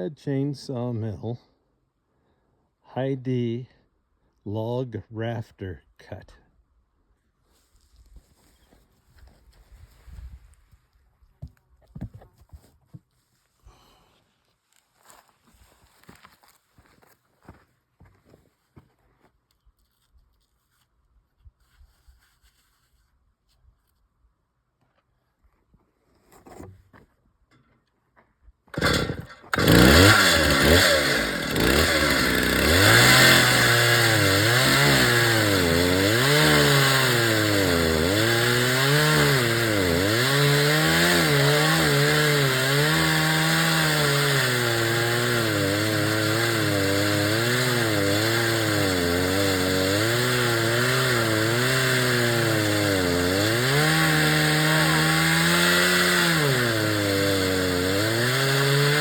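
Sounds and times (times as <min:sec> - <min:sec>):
chainsaw cutting log: 0:28.7 - 0:59.0.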